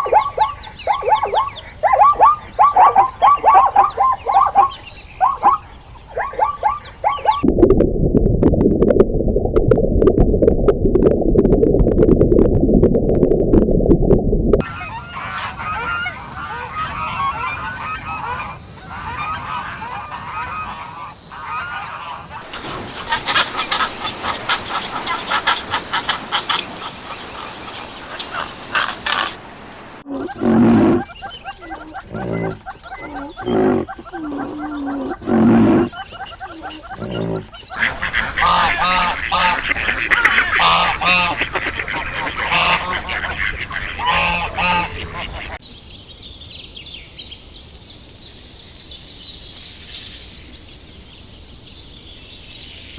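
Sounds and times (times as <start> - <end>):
ducks chattering and quacking: 0.0 - 7.4, 14.6 - 29.4, 30.0 - 45.7
geese honking: 0.0 - 7.4, 14.6 - 27.4, 30.1 - 45.6.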